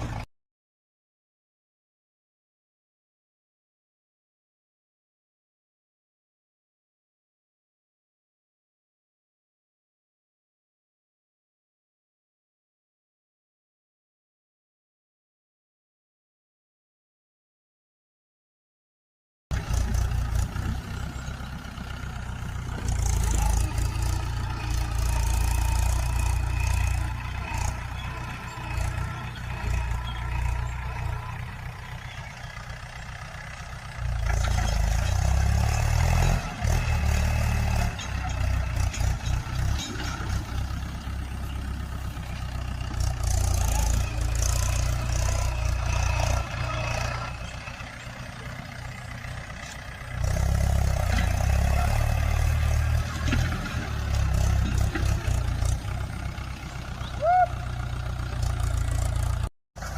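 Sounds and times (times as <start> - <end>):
tractor engine running: 0.0 - 0.3, 19.5 - 59.9.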